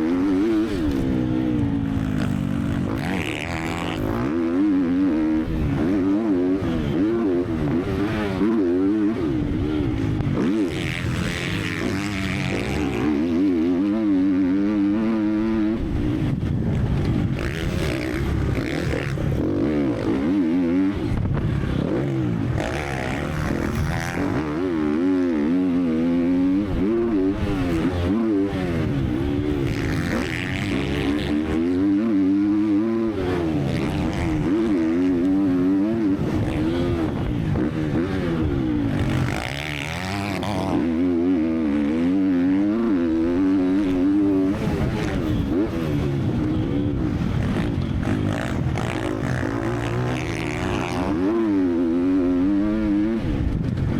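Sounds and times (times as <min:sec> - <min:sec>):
motocross engine revving: 0:00.0 - 0:53.2.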